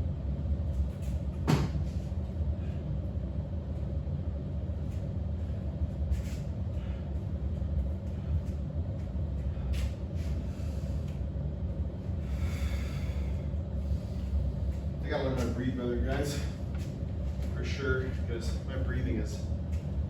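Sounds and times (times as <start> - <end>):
low rumble: 0.0 - 20.0
person breathing heavily: 9.4 - 11.2, 12.2 - 14.8, 16.2 - 16.8.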